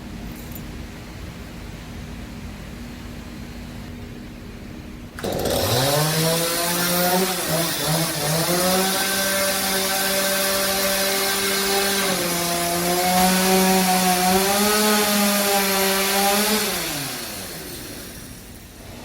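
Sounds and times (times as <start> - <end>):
chainsaw cutting timber: 5.2 - 18.5.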